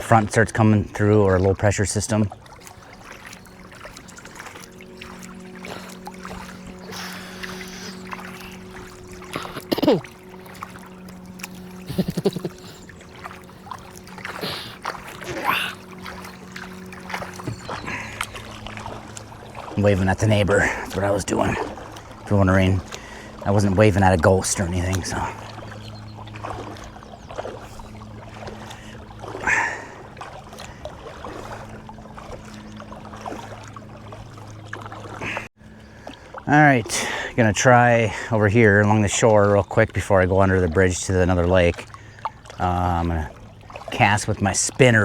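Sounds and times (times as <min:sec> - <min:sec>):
water splashing: 0:00.0 - 0:45.0
paddle strokes: 0:01.0 - 0:36.4, 0:38.9 - 0:45.0
water dripping: 0:01.5 - 0:22.2
steady low hum: 0:02.2 - 0:35.9.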